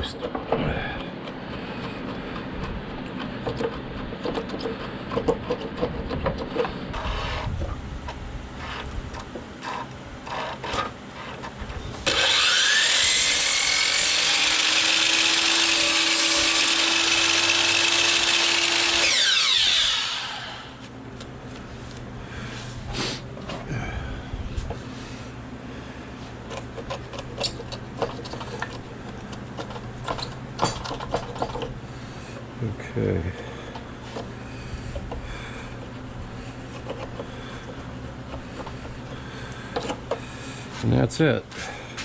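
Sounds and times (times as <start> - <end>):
knocks and scraping on wood: 0.0 - 7.7
power tool motor whining: 12.0 - 20.8.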